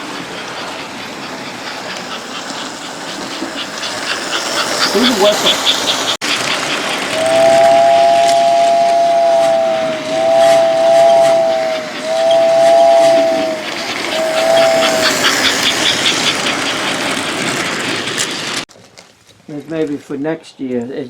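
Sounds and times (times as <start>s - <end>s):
toy train running: 0.0s - 18.7s
toy train whistle two-note chord: 7.2s - 15.4s.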